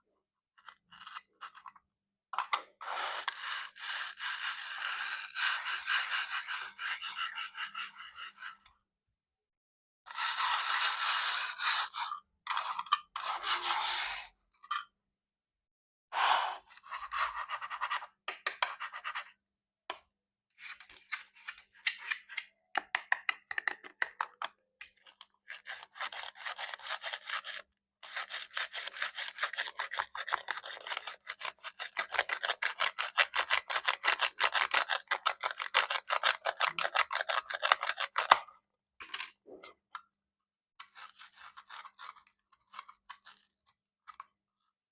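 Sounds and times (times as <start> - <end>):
knife rasping on plastic: 25.4 - 38.4, 40.8 - 43.6.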